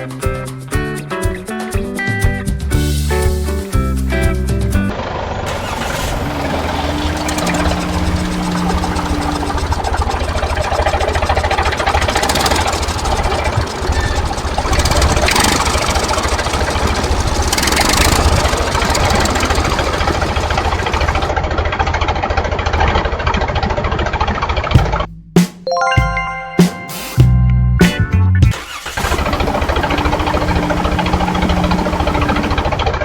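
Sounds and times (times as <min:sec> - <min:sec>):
tractor engine knocking: 0:05.5 - 0:25.1, 0:28.6 - 0:33.0.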